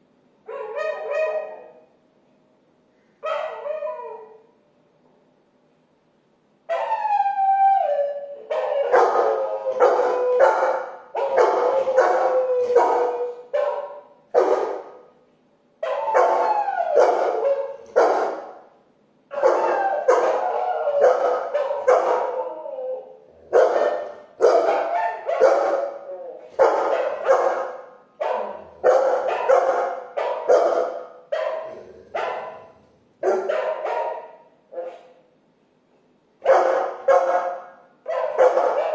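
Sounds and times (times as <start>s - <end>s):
dog barking: 0.5s - 1.9s, 3.2s - 4.4s, 8.5s - 15.1s, 15.8s - 18.7s, 19.3s - 22.4s, 23.4s - 26.0s, 26.6s - 35.3s, 36.4s - 38.9s
dog howling: 6.7s - 13.5s, 15.8s - 17.9s, 19.4s - 27.6s.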